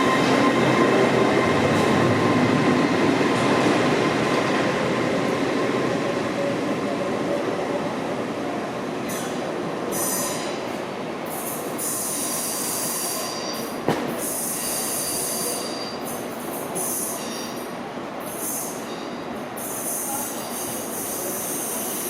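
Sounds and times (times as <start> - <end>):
train rumble: 0.0 - 11.7
train wheels squealing: 9.9 - 10.6, 11.3 - 22.0.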